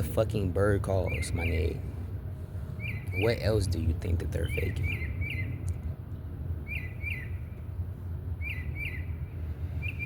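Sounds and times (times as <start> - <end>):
steady low rumble: 0.0 - 10.0
bird chirps in pairs: 0.9 - 1.8, 2.8 - 3.5, 4.4 - 5.8, 6.6 - 7.6, 8.4 - 10.0.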